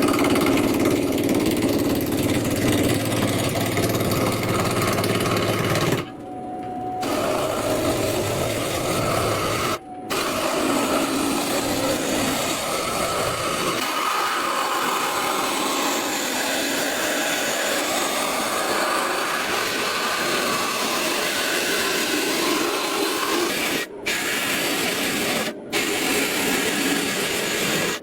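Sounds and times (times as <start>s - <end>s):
wood lathe cutting wood: 0.0s - 6.1s, 7.0s - 28.0s.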